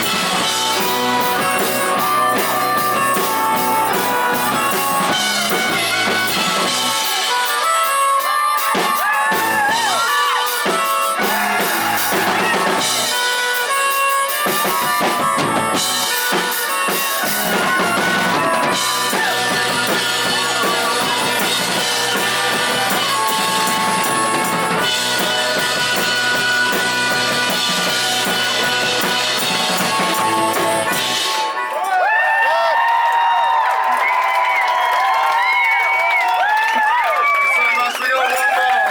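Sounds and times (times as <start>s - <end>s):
live rock band playing: 0.0s - 32.1s.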